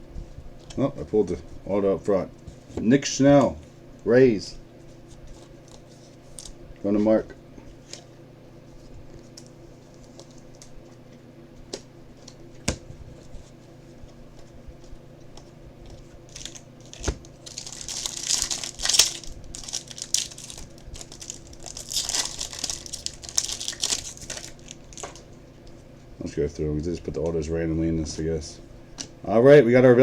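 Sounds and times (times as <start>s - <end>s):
foil wrapper tearing: 16.3s - 25.2s.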